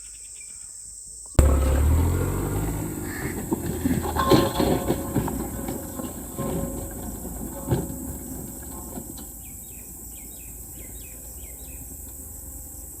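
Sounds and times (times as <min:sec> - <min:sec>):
sharp knocks: 0:01.4 - 0:09.3
low rumbling: 0:01.4 - 0:13.0.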